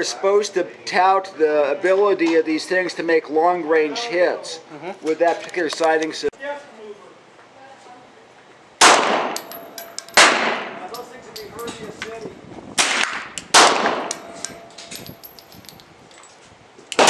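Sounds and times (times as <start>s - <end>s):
pistol shots with echo: 8.8s - 10.8s, 12.8s - 14.4s.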